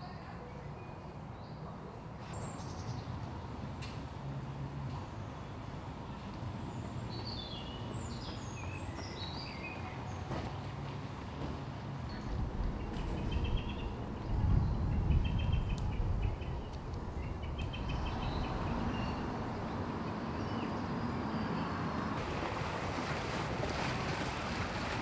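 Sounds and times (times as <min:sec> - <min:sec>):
steady outdoor hiss: 0:00.0 - 0:25.0
wind rumbling on microphone: 0:12.1 - 0:20.1.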